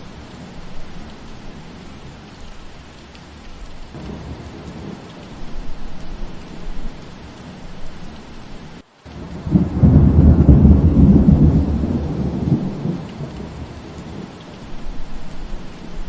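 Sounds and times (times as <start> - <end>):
steady rain: 0.0 - 16.0
thunder rumble: 3.9 - 8.2, 9.1 - 16.0.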